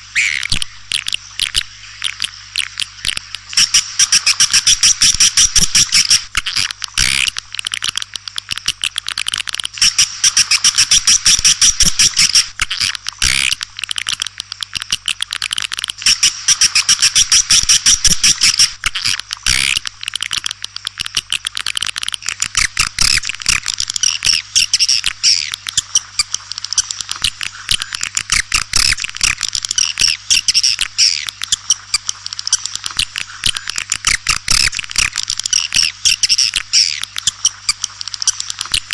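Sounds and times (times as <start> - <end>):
faint electrical hum: 0.0 - 38.9
swiftlets twittering: 0.1 - 7.3, 15.9 - 18.8.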